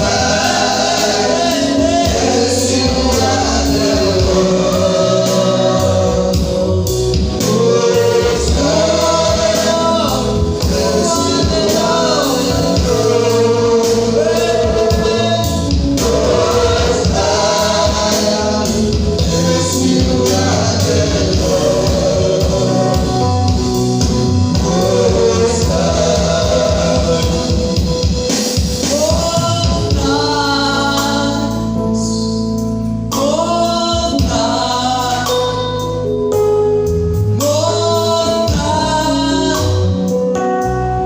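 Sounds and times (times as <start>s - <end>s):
steady beat: 0.0s - 30.1s
choir singing gospel music: 0.0s - 41.0s.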